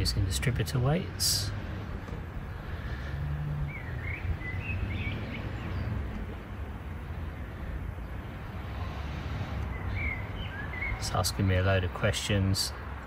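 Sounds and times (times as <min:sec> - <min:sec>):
bird chirps: 0:03.6 - 0:06.3, 0:09.6 - 0:11.2.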